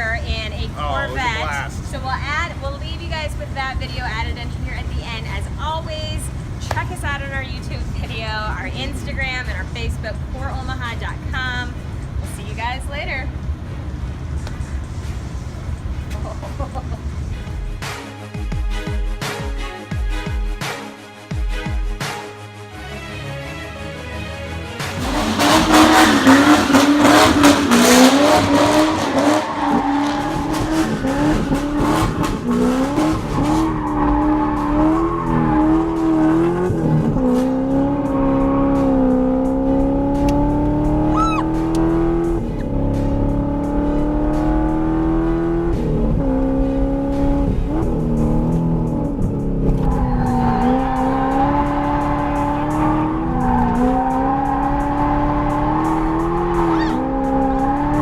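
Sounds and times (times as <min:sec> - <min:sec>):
car engine revving: 0:00.0 - 0:18.0, 0:24.8 - 0:58.0
tyres squealing: 0:41.1 - 0:41.6, 0:56.6 - 0:57.1.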